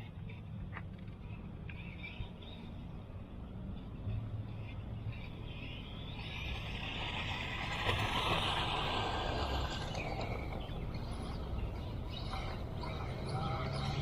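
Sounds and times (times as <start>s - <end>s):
tyres on road: 0.0s - 14.0s
electric toy car motor: 5.3s - 14.0s.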